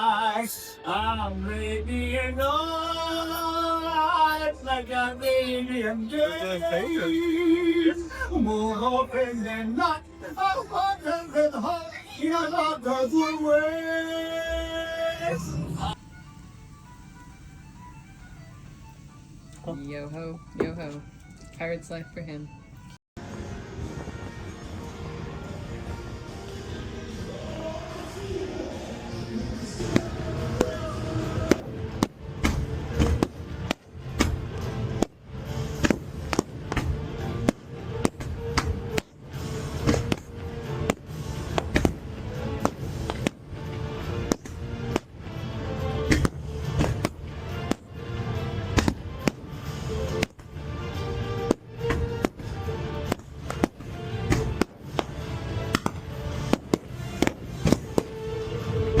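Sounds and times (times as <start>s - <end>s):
music with held notes: 16.0s - 27.7s, 28.9s - 59.0s
fireworks bangs: 29.4s - 45.4s, 46.0s - 59.0s.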